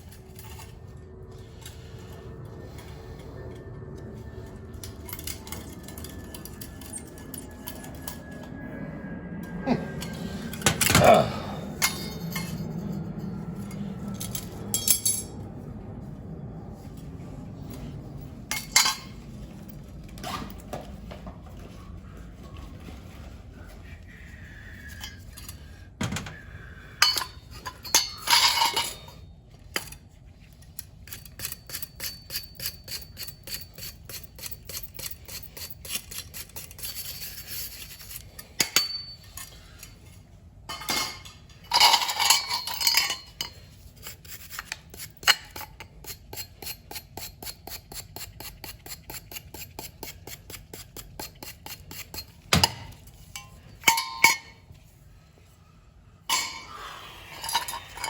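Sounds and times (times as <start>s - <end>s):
metal parts clinking: 4.5s - 8.4s, 11.8s - 13.0s, 13.6s - 15.3s, 27.0s - 40.0s, 40.7s - 46.5s, 51.3s - 54.6s.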